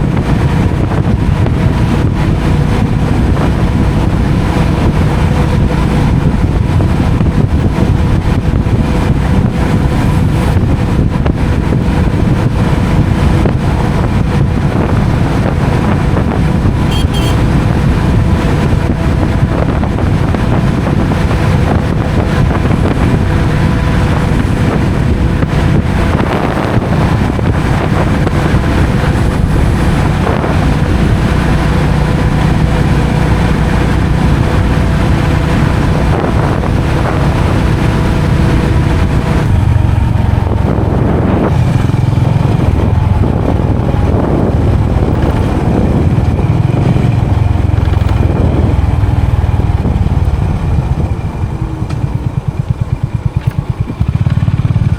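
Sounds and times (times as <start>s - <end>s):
engine running: 0.0s - 54.9s
wind rumble on microphone: 0.0s - 54.9s.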